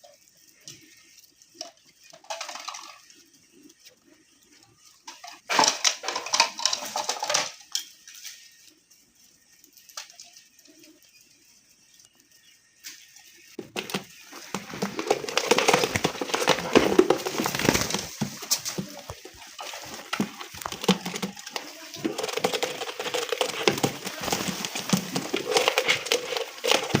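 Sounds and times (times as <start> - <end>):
pigeons cooing: 13.6 - 27.0.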